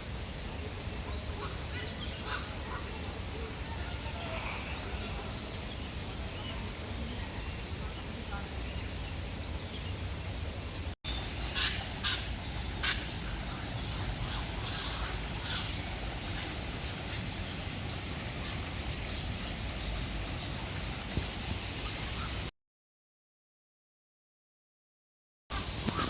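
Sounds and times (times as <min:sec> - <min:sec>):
steady outdoor hiss: 0:00.0 - 0:22.5, 0:25.5 - 0:26.0
birds calling: 0:01.1 - 0:03.0, 0:04.1 - 0:22.5.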